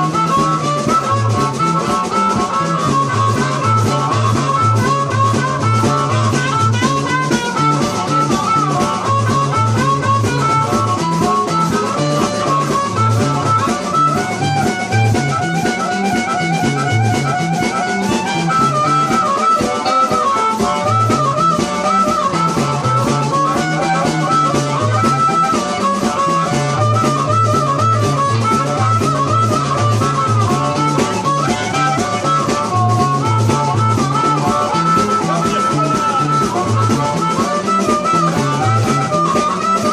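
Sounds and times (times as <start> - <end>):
drum kit: 0.0 - 39.9
instrumental blues music: 0.0 - 39.9
wavering lead melody: 0.0 - 39.9
repeating bass line: 22.3 - 37.4.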